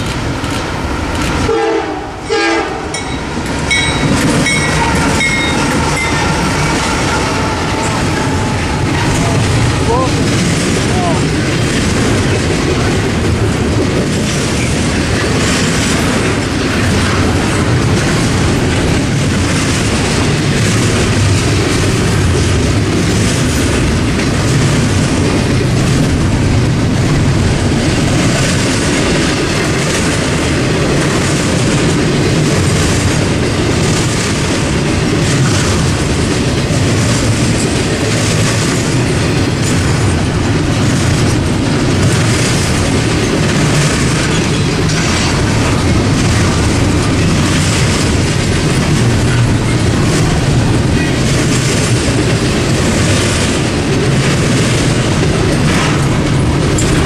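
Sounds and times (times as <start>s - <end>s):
freight train wheels on rails: 0.0s - 57.0s.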